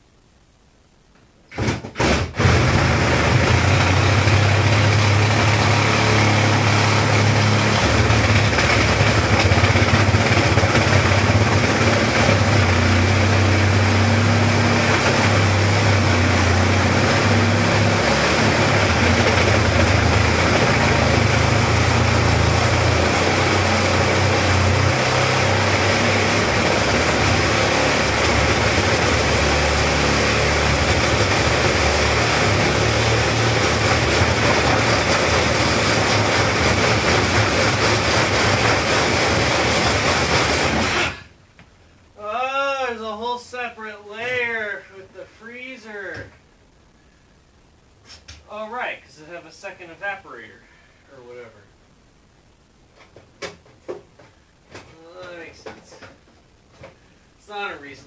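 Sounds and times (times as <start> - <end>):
power tool humming: 1.6 - 41.3.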